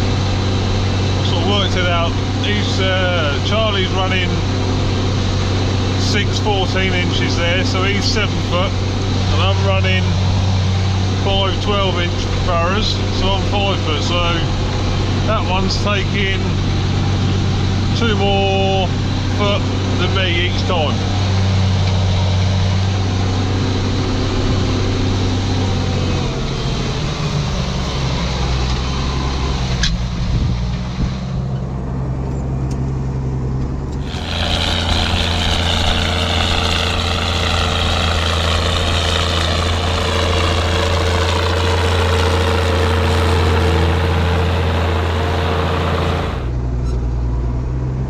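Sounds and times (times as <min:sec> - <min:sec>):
tractor diesel engine running: 0:34.0 - 0:46.6.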